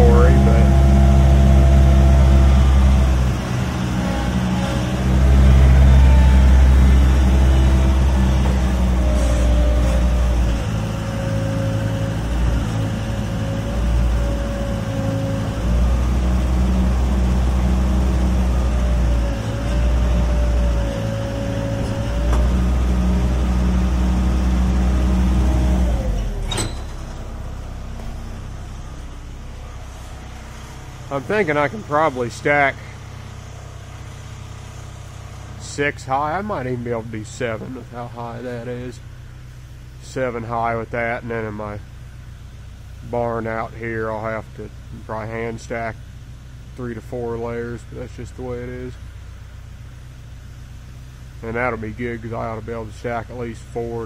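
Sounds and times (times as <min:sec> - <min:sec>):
hydraulic whine wavering in pitch: 0:00.0 - 0:41.8
skid steer engine running: 0:00.0 - 0:54.0.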